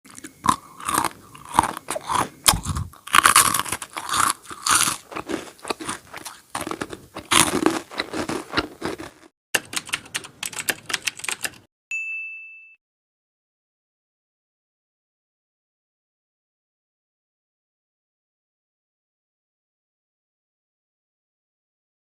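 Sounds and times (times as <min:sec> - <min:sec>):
crunchy chewing of snacks: 0:00.1 - 0:09.3.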